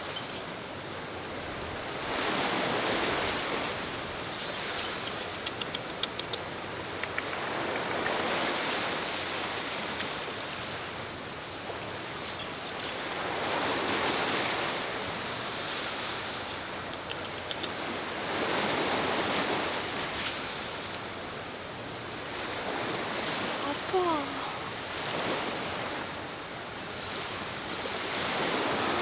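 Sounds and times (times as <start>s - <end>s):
sea waves breaking on shore: 1.3s - 4.9s, 13.0s - 16.4s, 17.6s - 26.3s, 27.2s - 29.0s
wind blowing: 15.2s - 21.0s.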